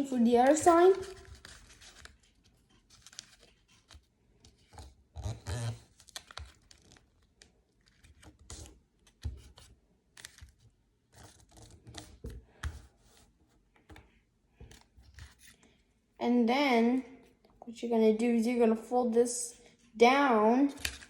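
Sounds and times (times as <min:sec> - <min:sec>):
paper being folded and creased: 0:00.4 - 0:14.0, 0:14.6 - 0:15.6.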